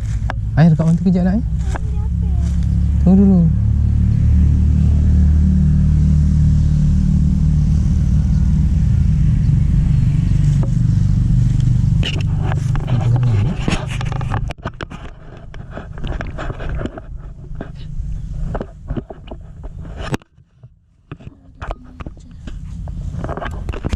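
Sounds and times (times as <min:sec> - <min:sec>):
engine humming: 0:00.0 - 0:23.9
knocks and handling noises: 0:12.0 - 0:23.9.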